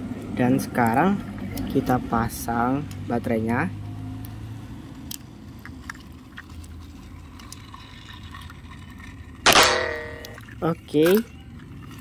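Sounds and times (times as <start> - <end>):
loud clack with ring: 9.5 - 10.4.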